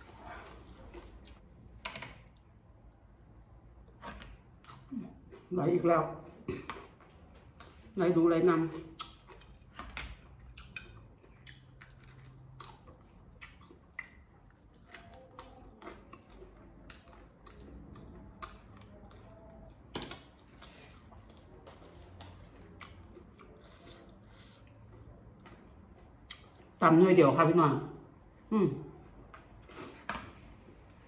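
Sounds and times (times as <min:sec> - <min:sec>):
person chewing crispy chicken: 0:03.2 - 0:05.0, 0:08.7 - 0:26.7.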